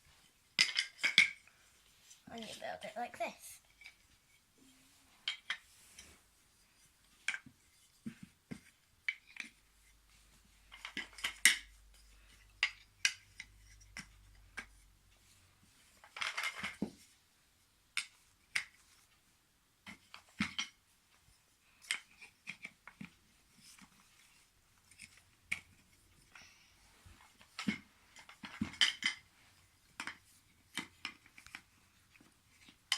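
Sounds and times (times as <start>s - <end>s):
wooden pieces clattering: 0.5s - 1.5s, 10.7s - 14.8s, 15.8s - 17.0s, 21.8s - 26.5s, 27.3s - 29.3s.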